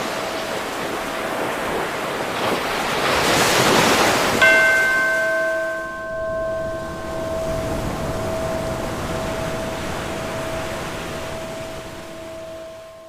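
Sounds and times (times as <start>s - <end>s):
ocean waves washing in: 0.0s - 13.0s
bell ringing: 4.4s - 13.0s.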